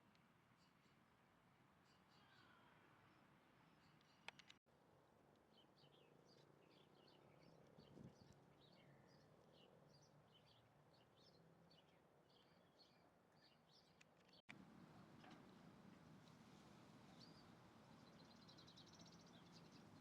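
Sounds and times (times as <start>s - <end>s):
small birds chirping: 5.4s - 20.0s
low background noise: 14.5s - 20.0s.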